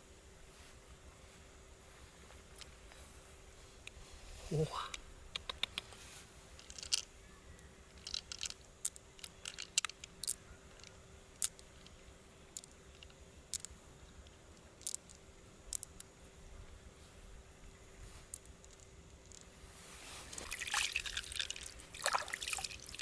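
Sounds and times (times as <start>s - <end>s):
shell clicks and crunches: 6.6s - 7.1s, 7.9s - 16.1s.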